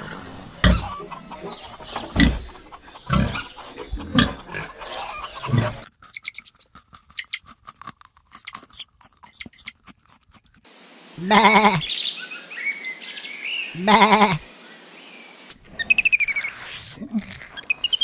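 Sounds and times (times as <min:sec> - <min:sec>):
high-pitched chirps and clucks: 0:00.6 - 0:07.5, 0:08.3 - 0:10.0
low deep animal grunts: 0:02.1 - 0:05.8, 0:11.2 - 0:11.9, 0:13.8 - 0:14.4.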